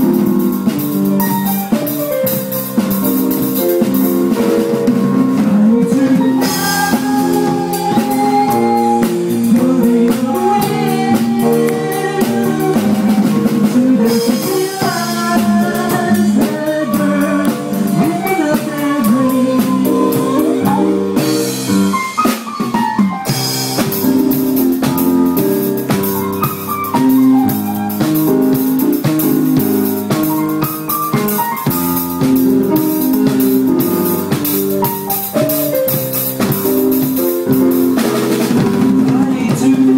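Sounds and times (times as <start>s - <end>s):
drum kit beat: 0.0s - 39.9s
keyboard chords: 0.0s - 39.9s.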